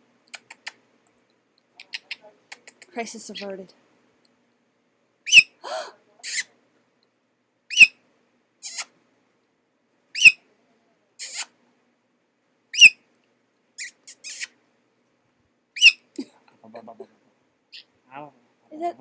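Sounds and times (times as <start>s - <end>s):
parrot high chirps: 1.8s - 2.2s, 5.2s - 5.6s, 6.2s - 6.5s, 7.7s - 8.0s, 8.6s - 8.9s, 10.1s - 10.4s, 11.2s - 11.5s, 12.7s - 13.0s, 13.8s - 14.6s, 15.8s - 16.1s
parrot raspy squawk: 5.3s - 5.6s, 6.2s - 6.5s, 7.7s - 8.0s, 8.6s - 8.9s, 10.2s - 10.4s, 11.2s - 11.5s, 12.7s - 13.0s, 13.8s - 14.6s, 15.8s - 16.1s.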